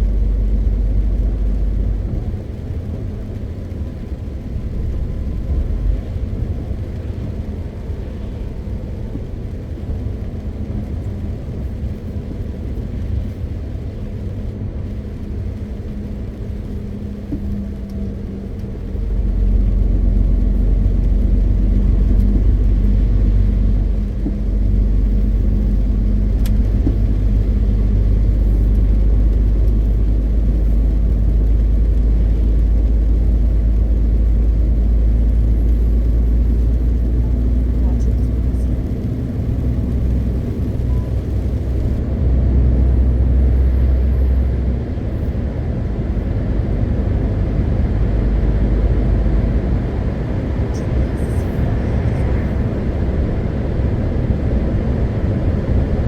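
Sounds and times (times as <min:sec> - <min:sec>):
road noise: 0:00.0 - 0:56.0
truck engine rumble: 0:00.0 - 0:56.0.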